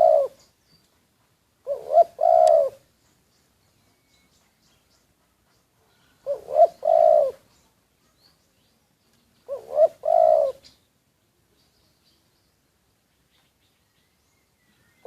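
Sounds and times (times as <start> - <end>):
dove cooing: 0.0 - 0.4, 1.6 - 2.9, 5.8 - 7.5, 9.4 - 10.8.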